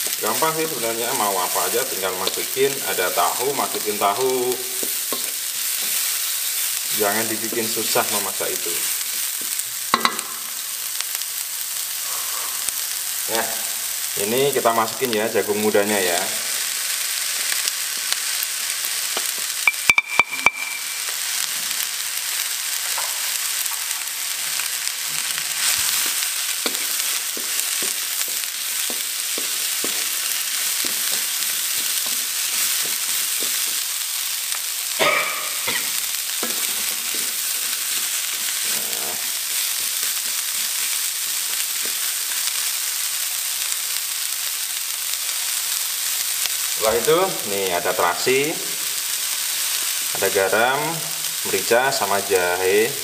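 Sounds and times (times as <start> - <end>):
food sizzling in a wok: 0.0 - 53.0
wooden spatula scraping: 25.1 - 34.1, 36.3 - 42.0.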